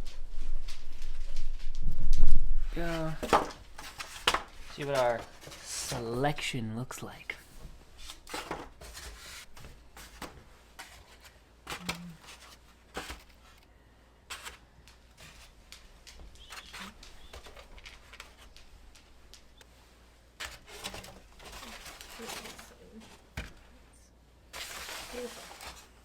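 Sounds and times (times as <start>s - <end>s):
soft rustling: 0.0s - 6.5s, 14.3s - 26.0s.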